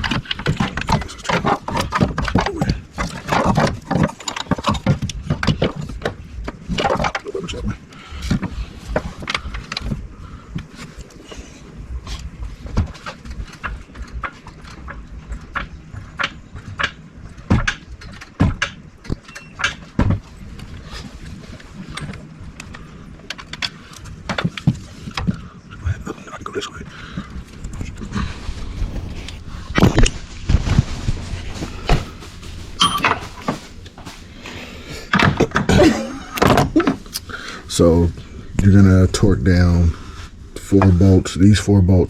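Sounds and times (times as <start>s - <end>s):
metal tools clanking: 31.6s - 34.2s.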